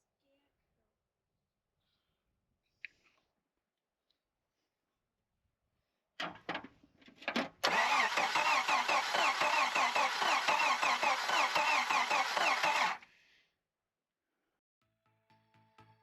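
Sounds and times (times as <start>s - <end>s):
engine cranking on starter: 7.5s - 13.0s.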